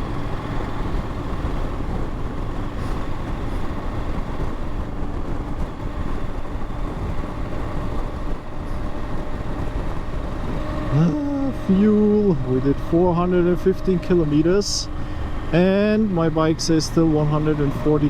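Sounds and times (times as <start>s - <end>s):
wind noise: 0.0s - 13.2s
motorcycle engine rumble: 0.0s - 18.0s.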